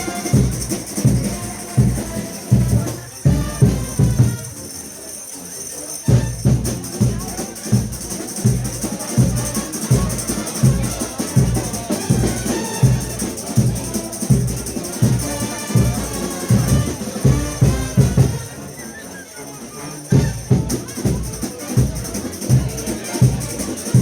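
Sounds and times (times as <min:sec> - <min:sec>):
driving drum beat: 0:00.0 - 0:04.8, 0:06.1 - 0:18.6, 0:20.1 - 0:24.0
brass band playing: 0:00.0 - 0:05.4, 0:06.0 - 0:24.0.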